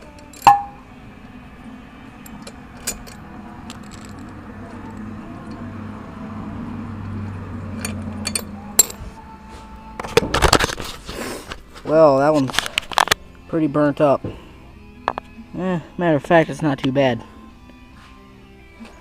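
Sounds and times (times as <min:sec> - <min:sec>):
metal tool clicks and clinks: 0:00.1 - 0:00.8, 0:07.8 - 0:09.0
low hum of passing vehicle: 0:00.7 - 0:10.0.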